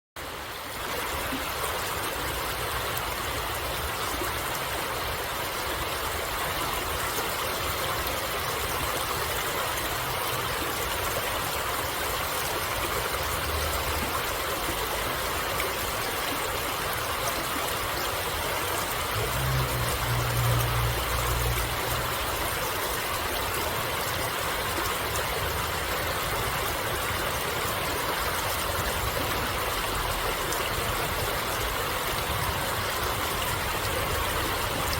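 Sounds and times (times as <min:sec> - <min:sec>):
stream water rushing: 0:00.2 - 0:34.9
low rumble: 0:19.2 - 0:22.5.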